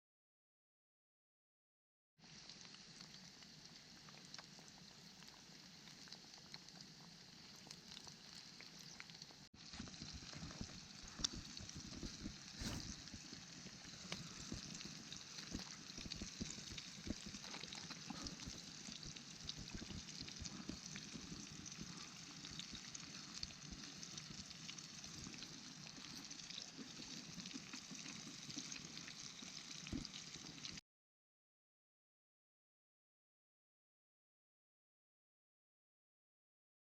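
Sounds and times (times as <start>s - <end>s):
food deep-frying in hot oil: 2.2s - 30.8s
oil crackling and popping: 2.2s - 30.8s.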